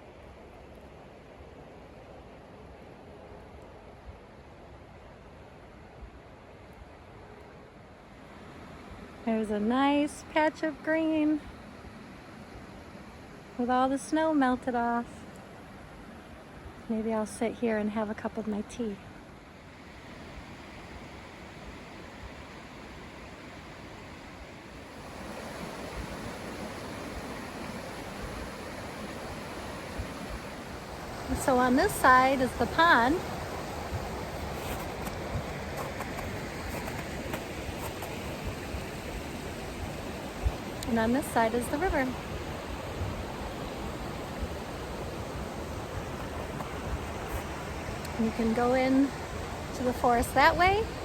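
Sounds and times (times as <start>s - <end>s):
river water rushing: 19.0s - 51.0s.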